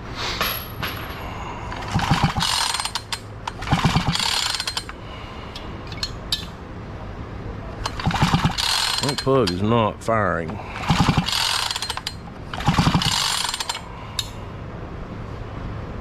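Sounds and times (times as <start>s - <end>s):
chainsaw recoil starter ratcheting: 1.8s - 5.0s, 7.8s - 9.7s, 10.8s - 13.8s.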